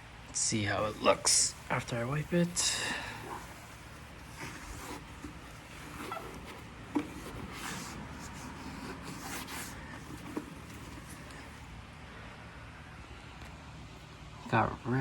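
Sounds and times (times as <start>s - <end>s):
cloth wiping plastic: 0.6s - 11.6s.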